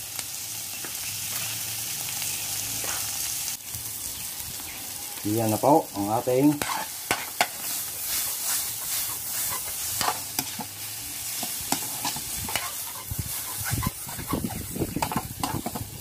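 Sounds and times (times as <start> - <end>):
food sizzling in a wok: 0.0 - 16.0
metal spoon scraping a pan: 6.4 - 16.0.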